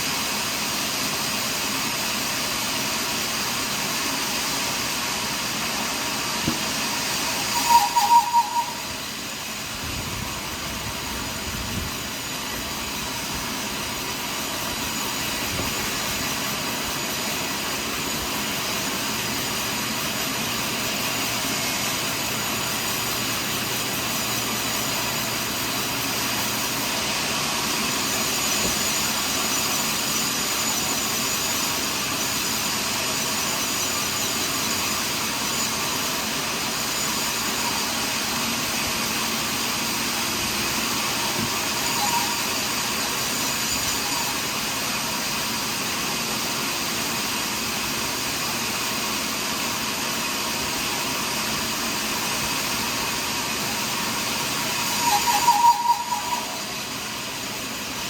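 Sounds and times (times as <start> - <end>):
sawmill machine drone: 0.0 - 58.0
loud pulsing tone: 6.9 - 13.2, 39.8 - 45.3, 52.9 - 57.8.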